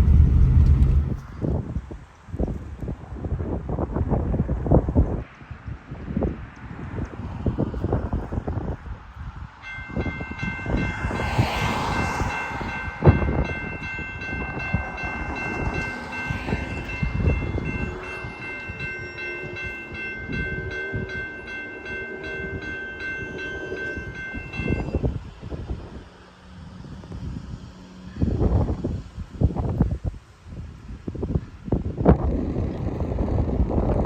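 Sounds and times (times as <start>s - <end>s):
diesel locomotives rumbling past: 0.0s - 1.9s, 6.8s - 30.2s.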